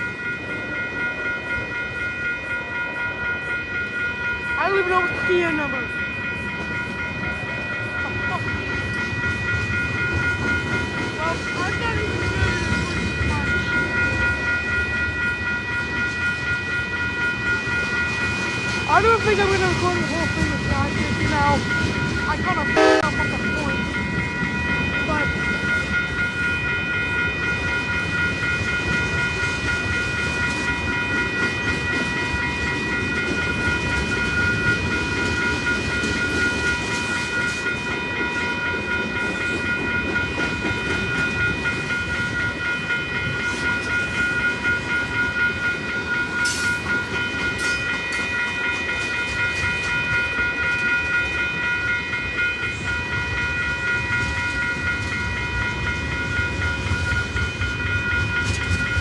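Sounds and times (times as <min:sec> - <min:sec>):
train wheels rumbling on track: 0:00.0 - 0:59.0
high-pitched tones: 0:18.0 - 0:27.7.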